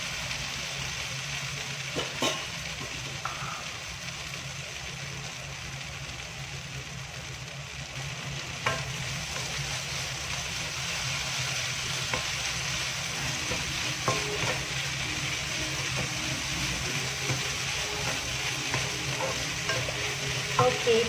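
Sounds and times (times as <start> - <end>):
stir-fry sizzling in a pan: 0.0 - 21.0
wooden spatula tapping a pan: 8.6 - 9.5, 13.2 - 14.8.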